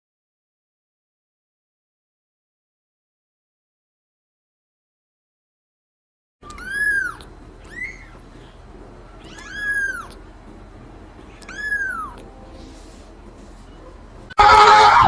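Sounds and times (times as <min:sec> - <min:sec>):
cat meowing: 0:06.4 - 0:08.2, 0:09.1 - 0:10.2, 0:11.3 - 0:12.3.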